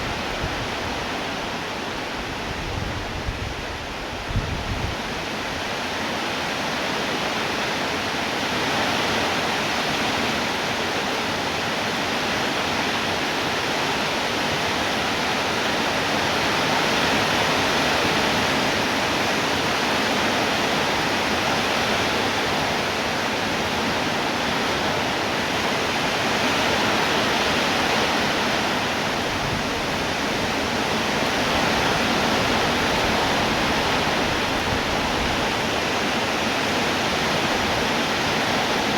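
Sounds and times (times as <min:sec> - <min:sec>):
rain falling: 0:14.7 - 0:38.9.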